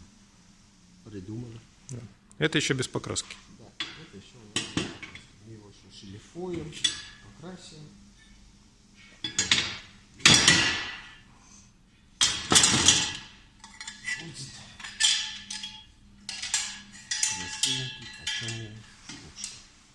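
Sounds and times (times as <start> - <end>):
fireplace tools clanking: 3.1 - 5.4, 6.4 - 7.4, 9.0 - 11.2, 12.2 - 19.7.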